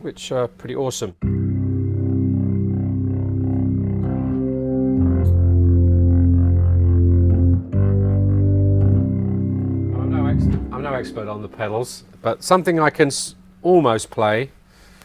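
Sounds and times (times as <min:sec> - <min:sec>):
deep organ pedal bass notes: 0:01.2 - 0:12.2
organ playing held chords: 0:01.2 - 0:12.2.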